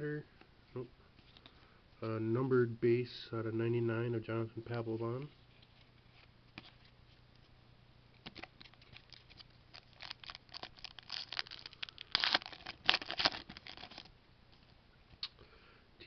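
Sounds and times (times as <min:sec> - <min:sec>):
cards handled: 0:08.2 - 0:14.7
foil wrapper crinkling and tearing: 0:08.3 - 0:14.1.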